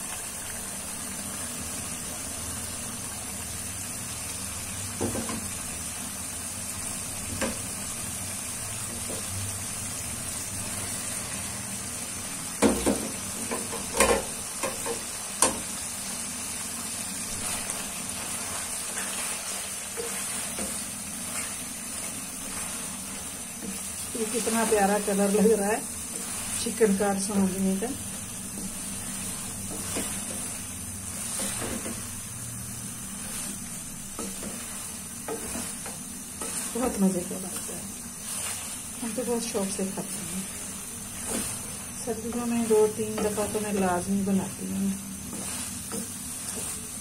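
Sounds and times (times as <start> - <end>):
food sizzling in a pan: 0.0 - 47.0
knocks against a pan: 12.6 - 15.6.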